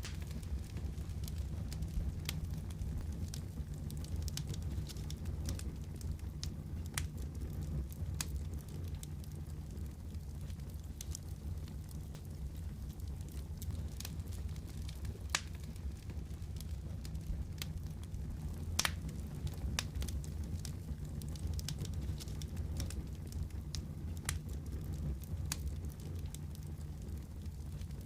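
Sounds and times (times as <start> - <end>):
wood fire crackling and popping: 0.0 - 28.0.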